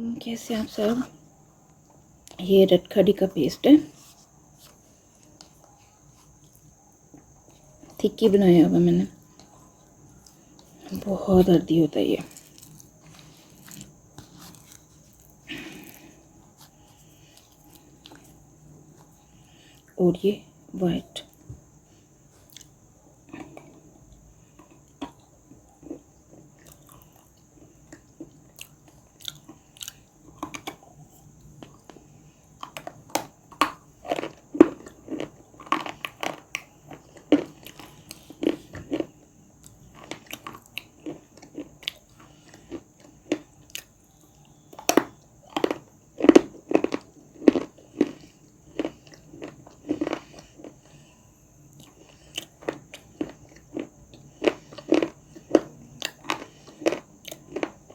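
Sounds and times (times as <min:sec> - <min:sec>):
clay being chewed crunching: 0:12.2 - 0:19.9, 0:22.3 - 0:23.9, 0:24.5 - 0:51.1, 0:51.7 - 0:57.9.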